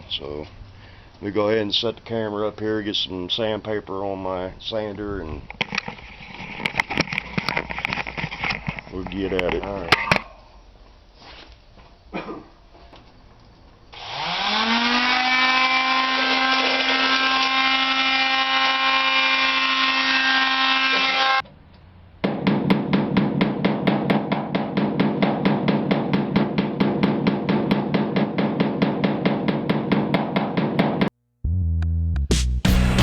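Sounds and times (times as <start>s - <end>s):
palm sander motor whine: 13.9s - 21.4s.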